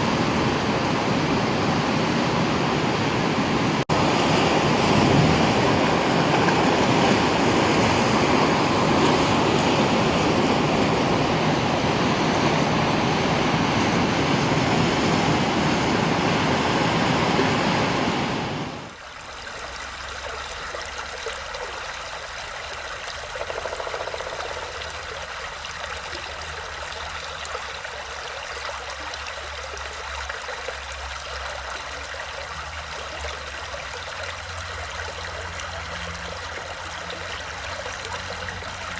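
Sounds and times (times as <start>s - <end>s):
heavy water rushing: 0.0s - 38.9s
brook babbling and trickling: 18.9s - 38.9s.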